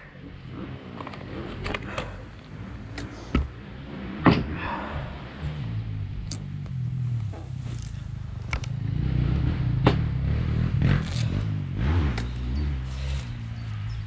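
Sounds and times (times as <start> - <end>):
dirt bike engine idling: 0.0 - 14.0
sharp clicks: 12.1 - 13.8.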